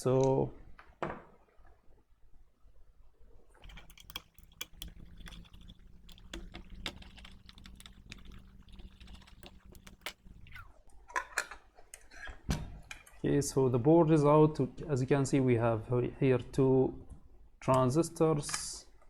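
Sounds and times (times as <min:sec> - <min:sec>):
metal parts clicking and rattling: 0:03.6 - 0:10.6
small motor humming: 0:03.6 - 0:10.6.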